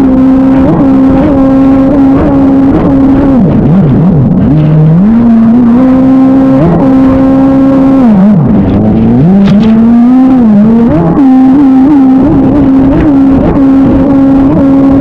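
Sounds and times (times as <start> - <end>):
jet ski engine running hard: 0.0 - 15.0.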